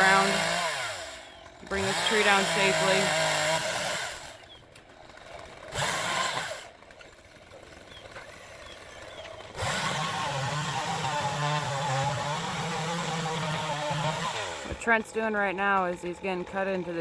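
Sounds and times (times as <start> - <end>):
chainsaw running: 0.0 - 17.0
motor with wavering pitch: 7.8 - 14.8.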